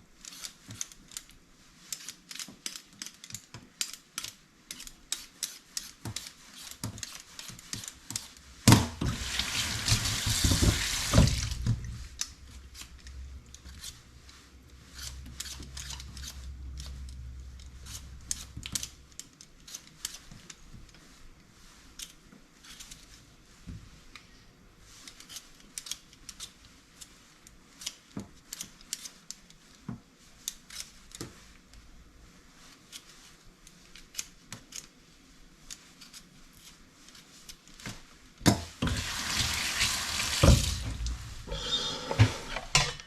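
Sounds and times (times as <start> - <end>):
kitchen tap running: 8.7 - 12.1, 38.8 - 43.0
clicks and knocks of kitchen work: 40.4 - 43.0.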